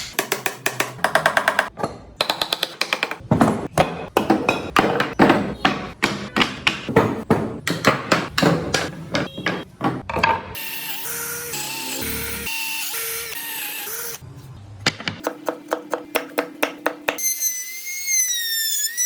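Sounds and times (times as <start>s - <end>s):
hand tool tapping wood: 3.8s - 10.3s.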